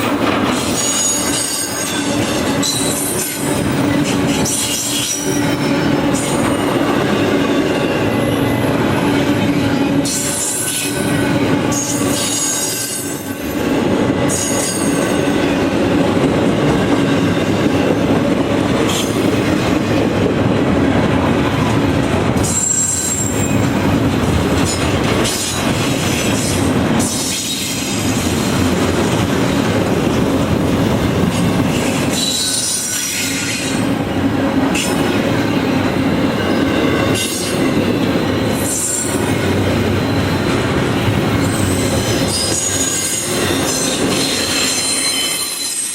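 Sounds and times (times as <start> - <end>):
train wheels rumbling on rails: 0.0 - 45.9
high-pitched wheel squeals: 0.7 - 3.4, 22.4 - 23.6, 32.1 - 33.8, 41.4 - 45.9.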